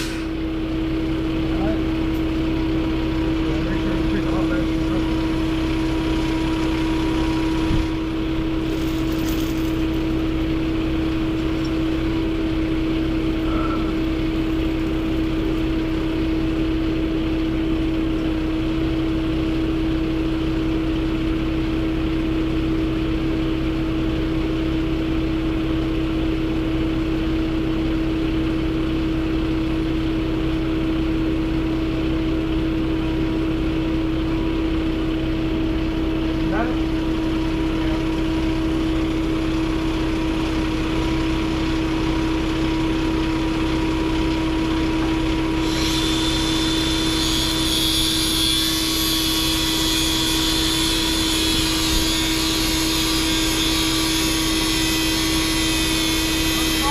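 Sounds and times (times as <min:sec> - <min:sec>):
road noise: 0:00.0 - 0:18.3
vehicle engine drone: 0:00.0 - 0:56.9.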